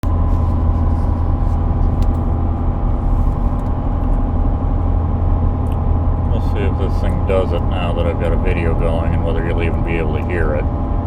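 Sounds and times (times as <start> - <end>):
pickup engine drone in cabin: 0.0 - 11.0.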